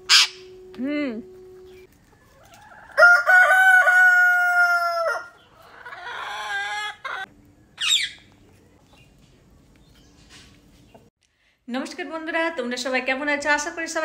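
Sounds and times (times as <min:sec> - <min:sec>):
bird calls: 0:00.0 - 0:00.5, 0:05.3 - 0:11.1.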